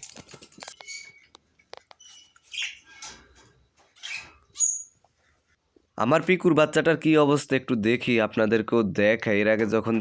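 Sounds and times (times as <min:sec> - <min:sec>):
small birds chirping: 0:00.7 - 0:05.6.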